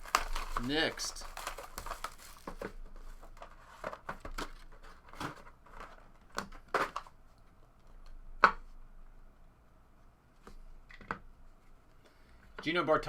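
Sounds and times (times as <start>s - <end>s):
packaging rustling: 0.0s - 7.1s.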